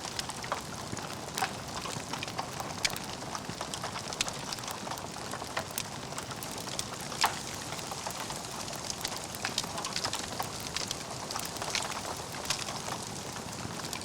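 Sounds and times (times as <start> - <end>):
logs crackling and popping in fire: 0.0 - 14.0.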